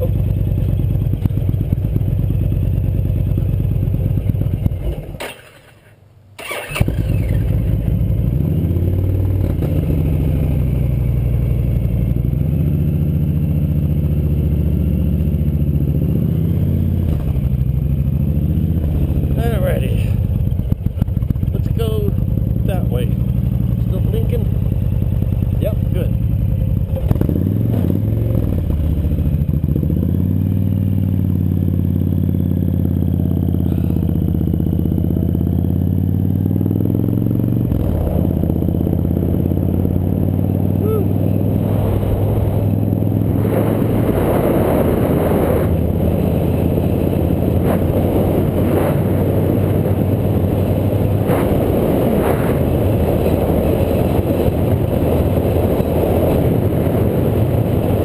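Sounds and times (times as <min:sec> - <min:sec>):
motorbike engine running: 0:00.0 - 0:05.2, 0:06.4 - 0:58.0
rattles: 0:04.6 - 0:06.8
wind buffeting: 0:37.6 - 0:58.0.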